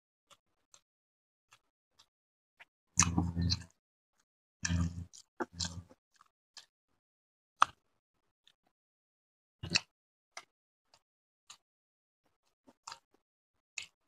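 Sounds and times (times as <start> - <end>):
close chewing and wet mouth sounds: 3.0 - 3.8, 4.6 - 6.7, 9.6 - 11.6, 12.6 - 13.2, 13.8 - 14.0.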